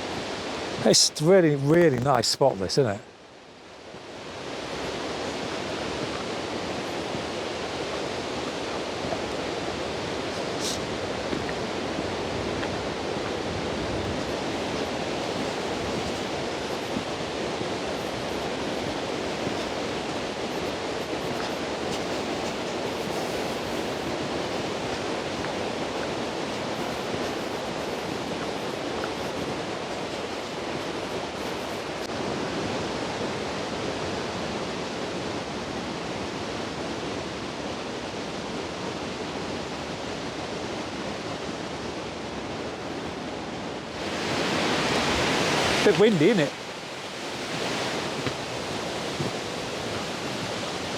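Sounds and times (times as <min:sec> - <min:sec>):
wind in trees: 0:00.0 - 0:50.9
waterfall rushing: 0:04.2 - 0:32.0, 0:44.0 - 0:50.9.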